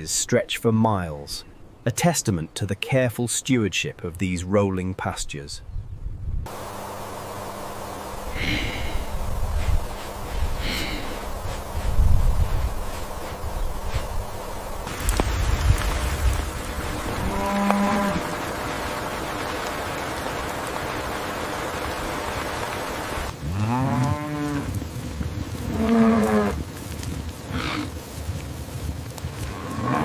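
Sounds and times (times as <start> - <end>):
steady hiss: 6.5 - 30.0
cattle mooing: 17.2 - 18.4, 23.4 - 24.7.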